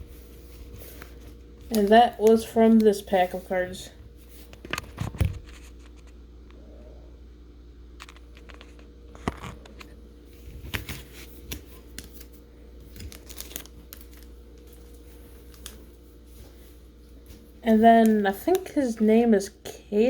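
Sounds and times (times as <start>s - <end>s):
steady low hum: 0.0s - 20.0s
cards and packaging handled: 8.0s - 16.7s.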